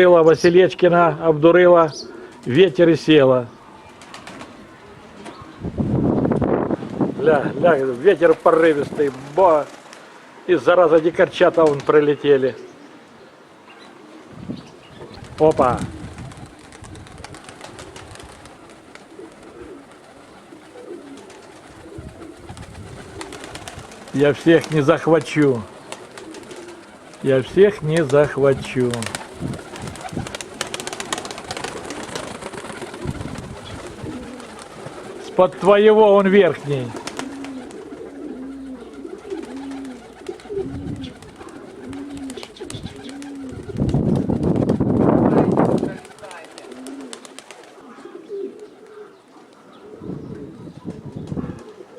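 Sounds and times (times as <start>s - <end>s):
pigeons cooing: 0.0s - 6.3s, 7.4s - 44.6s, 45.6s - 51.9s
wind gust on microphone: 5.0s - 8.0s, 14.3s - 18.7s, 21.6s - 24.4s, 28.4s - 30.5s, 32.8s - 35.1s, 40.4s - 42.0s, 42.6s - 46.2s, 50.0s - 51.6s.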